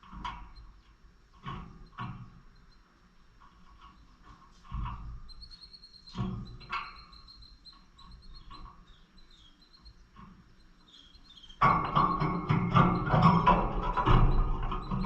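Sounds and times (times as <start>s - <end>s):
lovebirds chirping: 5.2s - 15.0s.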